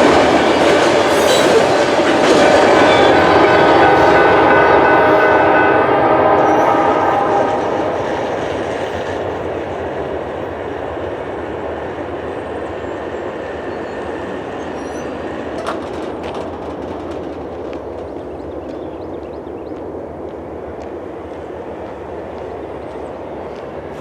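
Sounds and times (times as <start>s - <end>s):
train wheels rumbling on rail: 0.0s - 24.0s
train horn: 1.0s - 9.1s.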